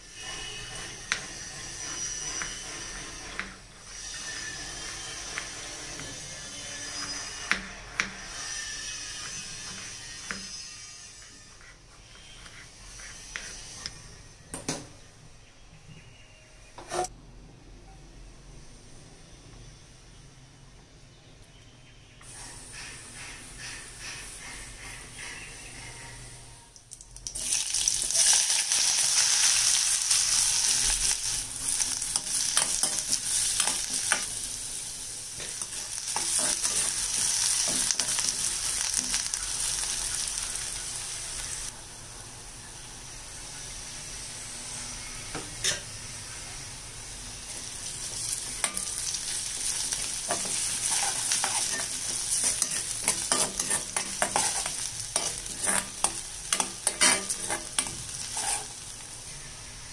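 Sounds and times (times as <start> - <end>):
onions sizzling in hot oil: 0.0 - 11.4, 27.2 - 59.9.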